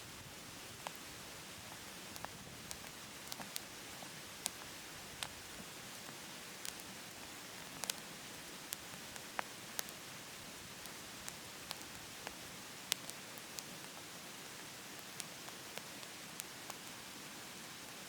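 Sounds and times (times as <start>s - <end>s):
wood crackling and popping: 0.8s - 10.0s, 10.6s - 14.1s.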